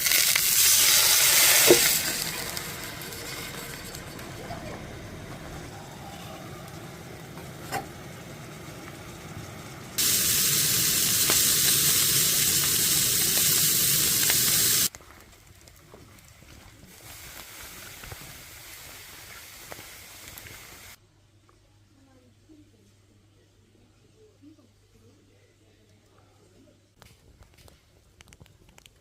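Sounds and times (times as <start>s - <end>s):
steady hiss: 0.0s - 3.4s, 8.4s - 14.9s, 16.9s - 21.0s.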